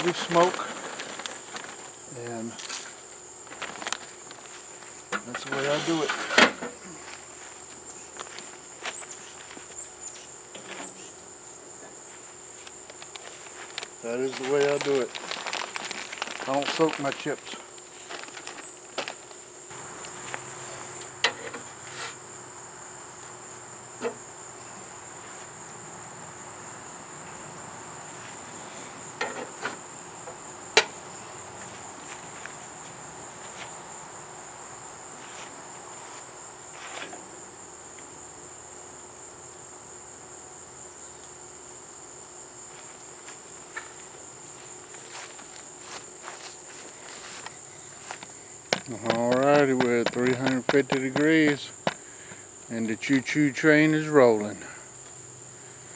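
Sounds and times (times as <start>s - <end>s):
sharp knocks: 48.7s - 52.0s.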